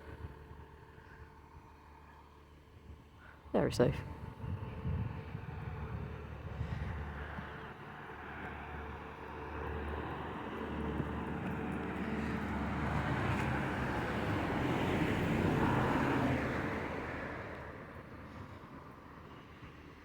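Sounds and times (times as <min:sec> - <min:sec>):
passing road vehicle: 0:04.0 - 0:20.0
bus engine idling: 0:08.6 - 0:18.7.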